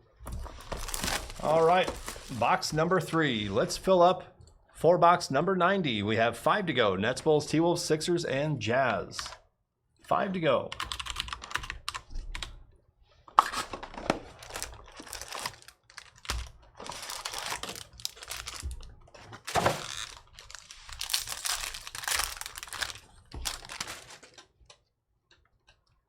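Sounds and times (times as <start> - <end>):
packaging tearing and crinkling: 0.6 - 2.4, 13.4 - 24.4.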